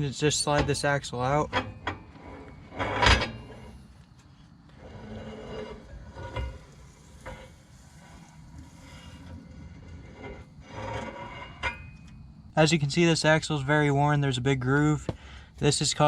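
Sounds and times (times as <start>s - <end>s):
metal shaft scraping: 0.0s - 12.6s
loud metal clunk: 2.8s - 3.8s.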